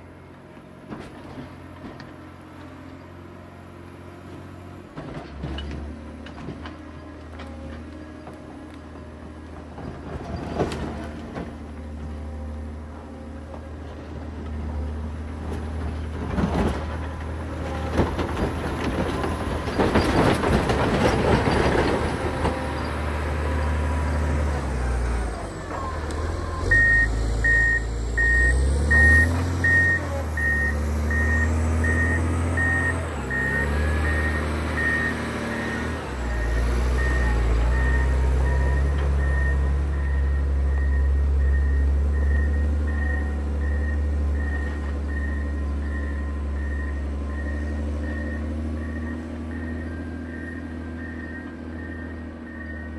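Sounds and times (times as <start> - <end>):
diesel engine running under load: 0.0 - 52.9
reversing alarm beeping: 25.8 - 52.9.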